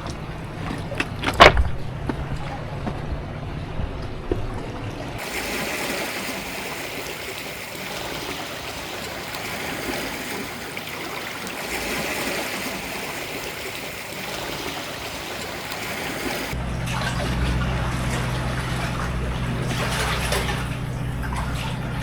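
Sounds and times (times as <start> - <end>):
waves washing against shore: 4.8 - 22.0.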